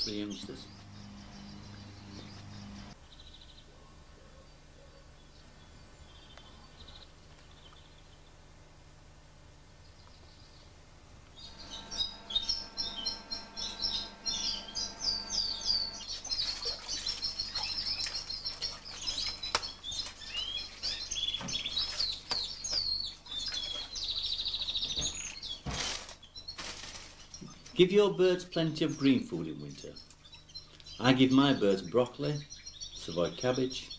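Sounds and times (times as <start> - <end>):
canaries chirping and singing: 0.0 - 3.0, 11.4 - 26.5, 27.2 - 33.9
fast bird trill: 11.4 - 22.0.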